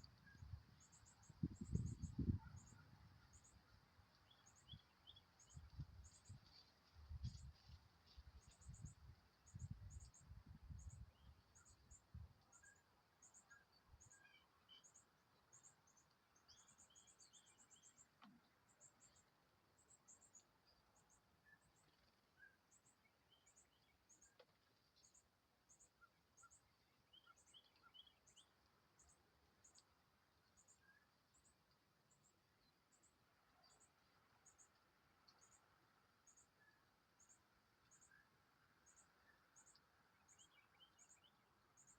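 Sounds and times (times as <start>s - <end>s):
bird chirps: 0.0s - 7.5s, 19.8s - 41.9s.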